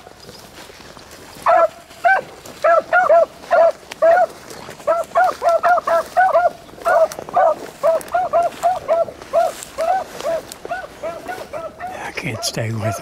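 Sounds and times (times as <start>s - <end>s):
hounds barking in high notes: 1.4s - 13.0s.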